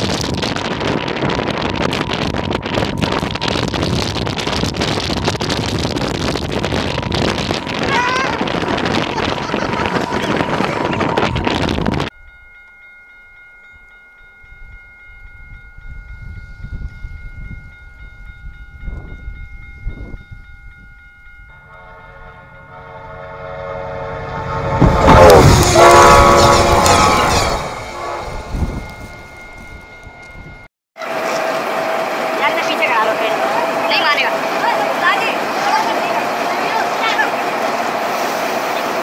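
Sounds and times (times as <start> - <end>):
train rushing through snow: 0.0 - 12.1, 15.0 - 39.0
level-crossing warning bell: 0.6 - 37.9
train horn: 21.6 - 29.0, 31.0 - 37.5.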